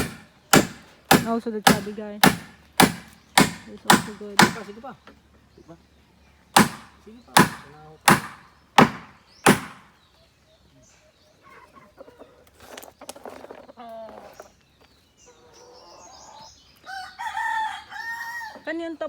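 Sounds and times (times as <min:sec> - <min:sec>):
sharp chopping strikes: 0:00.0 - 0:04.8, 0:06.6 - 0:09.9
chickens clucking: 0:10.2 - 0:18.7.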